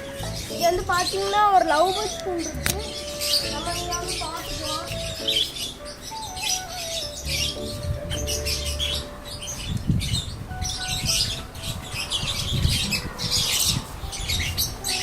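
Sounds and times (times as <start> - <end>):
lovebirds chirping and chattering: 0.0 - 15.0.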